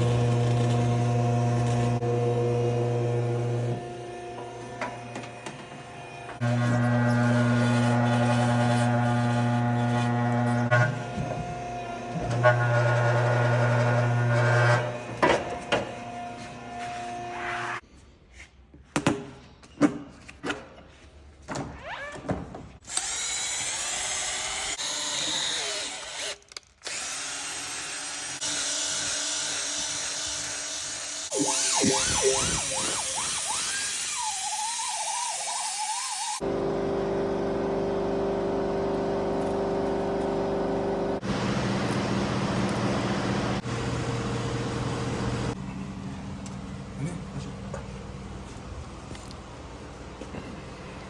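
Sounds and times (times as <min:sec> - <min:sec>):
power tool whirring: 0:00.0 - 0:17.8, 0:22.8 - 0:41.3.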